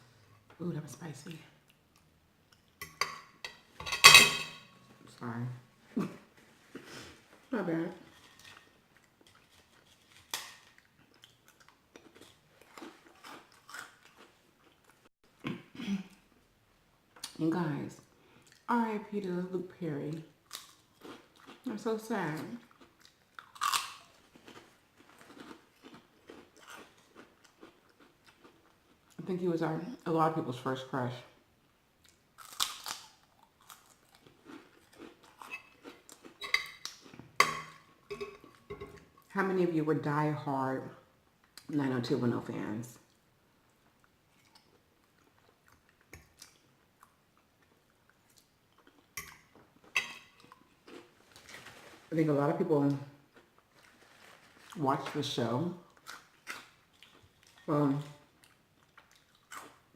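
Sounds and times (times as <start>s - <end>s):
food crunch: 8.1s - 15.0s, 22.5s - 29.1s, 32.0s - 37.2s
person chewing: 8.1s - 16.4s, 20.4s - 21.7s, 22.5s - 29.2s, 32.0s - 39.3s, 43.1s - 52.0s, 55.9s - 59.9s.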